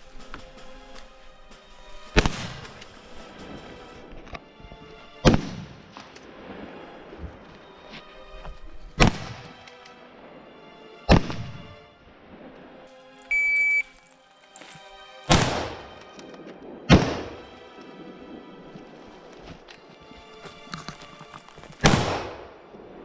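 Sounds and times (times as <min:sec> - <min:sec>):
background music: 0:00.0 - 0:23.0
shot timer beep: 0:13.3 - 0:13.9
rifle shots: 0:15.3 - 0:15.9, 0:21.8 - 0:22.5.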